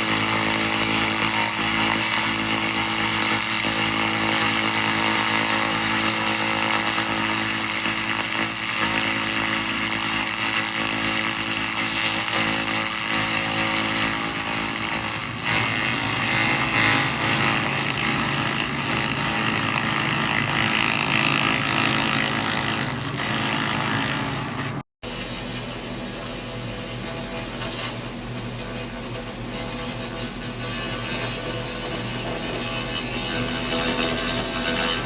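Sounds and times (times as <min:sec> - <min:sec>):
laser rust remover buzzing: 0:00.0 - 0:24.8.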